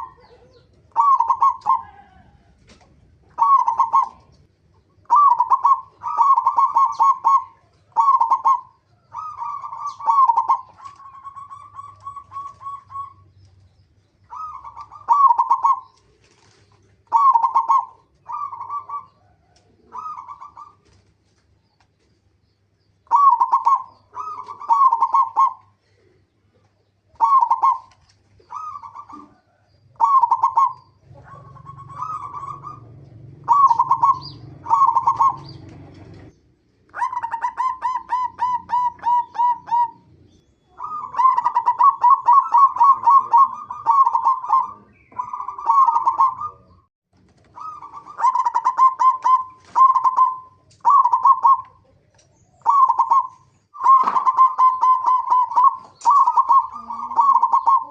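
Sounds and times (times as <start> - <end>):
dove cooing: 0.0 - 21.4, 23.0 - 57.9.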